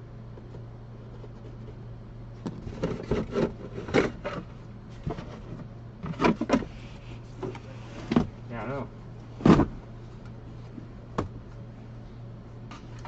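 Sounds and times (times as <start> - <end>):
steady low hum: 0.0 - 13.0
car interior parts rubbing and scraping: 2.4 - 8.4.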